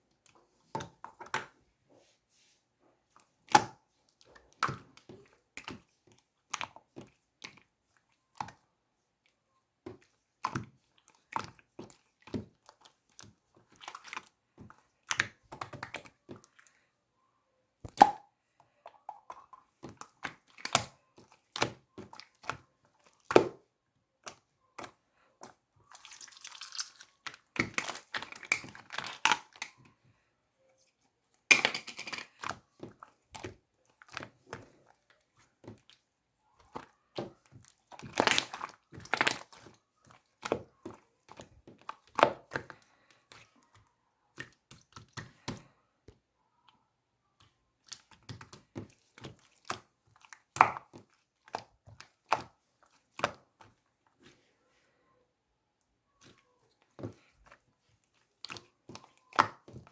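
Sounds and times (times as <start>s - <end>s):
slime squished by hand: 32.3s - 45.7s.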